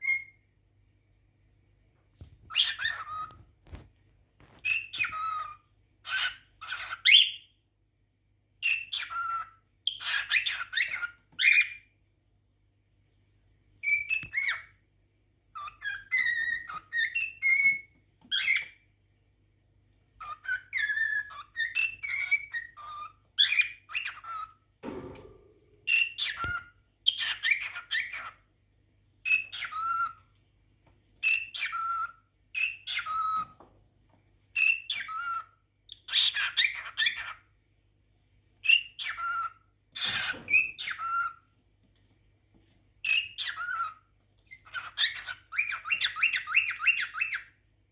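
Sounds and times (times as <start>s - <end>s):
cockatiel chirping and whistling: 0.0s - 0.4s, 2.4s - 3.8s, 4.5s - 7.5s, 8.6s - 11.9s, 13.8s - 14.8s, 15.5s - 18.8s, 20.2s - 24.6s, 25.9s - 28.4s, 29.2s - 30.2s, 31.2s - 33.6s, 34.5s - 37.4s, 38.6s - 41.4s, 43.0s - 47.6s.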